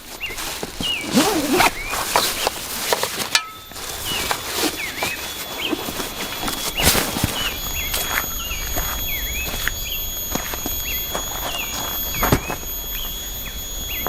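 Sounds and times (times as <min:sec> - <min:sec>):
gear rustling and clicking: 0:00.0 - 0:14.0
bird chirping: 0:00.1 - 0:14.0.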